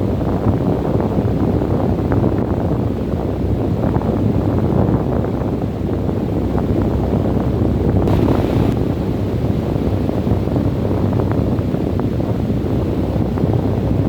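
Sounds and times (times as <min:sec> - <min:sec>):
steady low wind: 0:05.0 - 0:14.0
faint crackles: 0:08.1 - 0:08.8
short bright hiss: 0:08.1 - 0:08.9.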